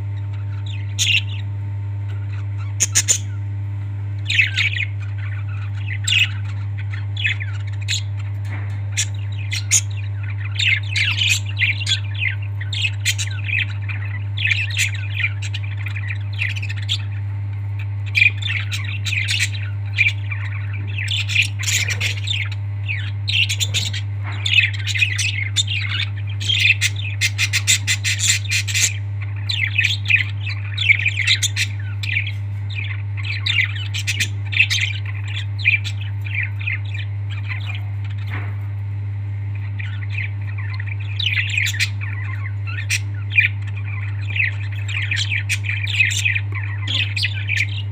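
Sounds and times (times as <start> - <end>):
steady low hum: 0.0 - 47.9
parrots squawking and chirping: 0.1 - 1.5, 2.1 - 3.4, 4.2 - 47.9.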